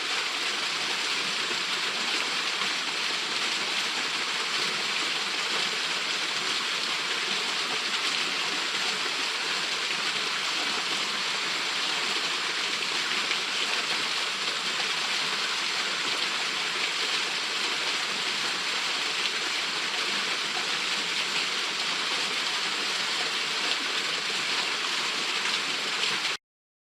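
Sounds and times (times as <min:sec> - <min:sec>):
waterfall pouring: 0:00.0 - 0:26.4.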